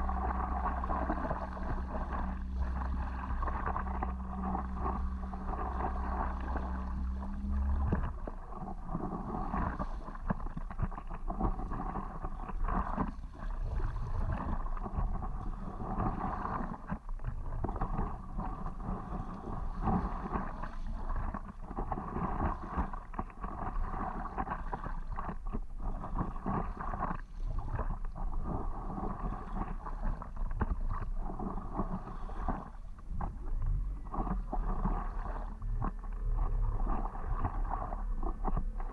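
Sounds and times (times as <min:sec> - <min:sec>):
low steady hum: 0:00.0 - 0:38.9
water splashing around paddleboard: 0:00.0 - 0:38.9.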